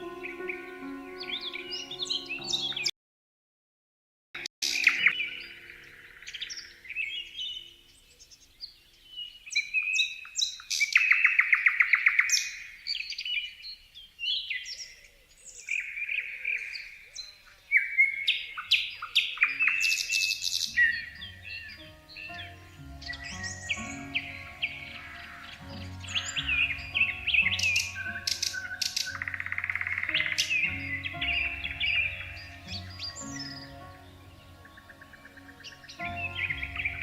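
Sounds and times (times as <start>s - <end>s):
songbirds chirping and whistling: 0.0s - 2.9s, 4.6s - 37.0s
loud bird trill: 15.5s - 37.0s.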